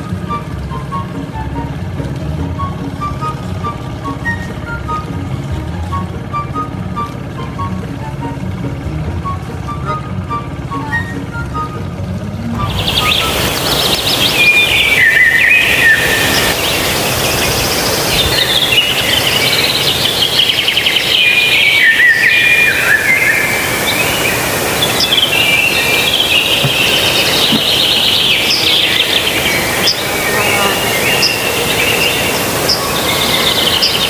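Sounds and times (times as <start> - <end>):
background hiss: 12.6 - 34.0
small birds chirping and trilling: 12.6 - 34.0.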